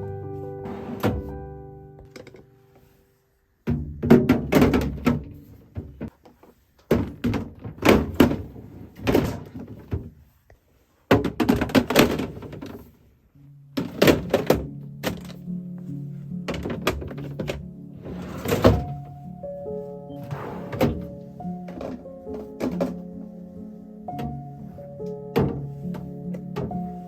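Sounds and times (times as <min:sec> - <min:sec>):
background music: 0:00.0 - 0:03.3, 0:13.4 - 0:27.0.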